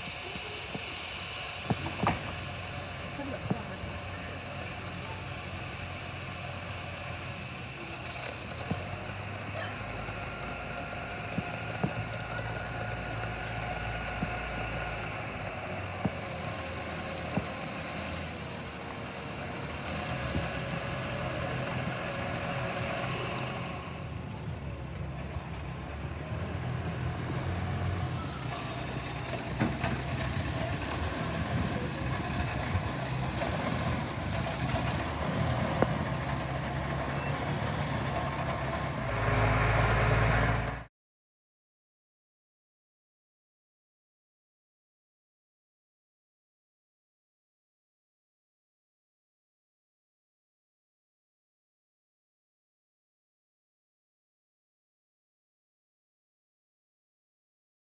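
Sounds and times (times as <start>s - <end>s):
locomotive running: 0.0s - 40.9s
train cars knocking and clanking: 0.1s - 6.3s, 24.0s - 39.1s.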